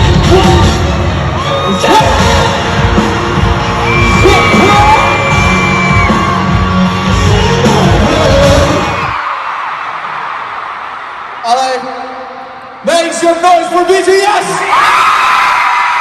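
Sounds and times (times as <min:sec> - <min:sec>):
loud music over sound system: 0:00.0 - 0:09.2
crowd screaming and whooping: 0:00.0 - 0:12.4, 0:14.1 - 0:16.0.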